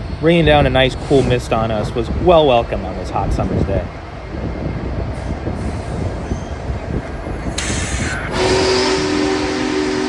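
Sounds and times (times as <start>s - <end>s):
steam hiss: 5.2s - 9.9s
steam whistle: 8.2s - 10.0s.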